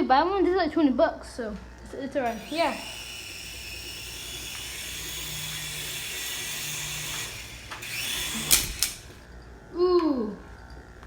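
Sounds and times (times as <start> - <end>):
toy helicopter rotors whirring: 2.2 - 9.3.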